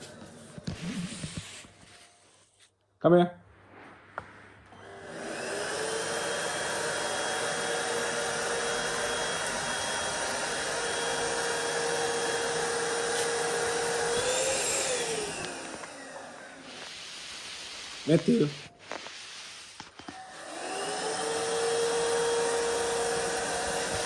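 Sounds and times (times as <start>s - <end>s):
vacuum cleaner motor whining: 4.7s - 24.0s.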